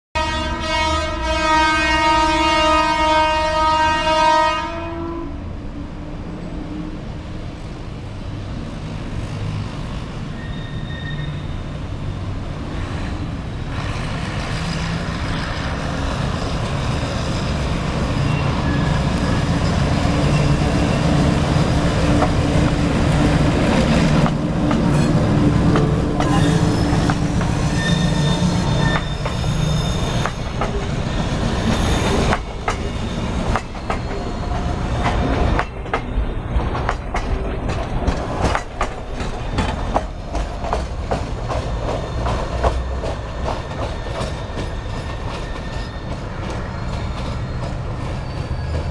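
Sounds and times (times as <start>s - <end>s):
high wheel squeal: 10.3s - 11.7s, 18.0s - 21.3s, 26.2s - 35.0s, 43.9s - 48.9s.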